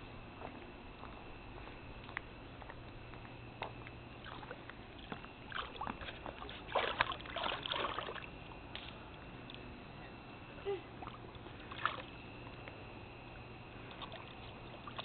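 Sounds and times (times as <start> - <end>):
pool water splashing: 4.2 - 8.9, 11.0 - 12.5, 13.7 - 15.0.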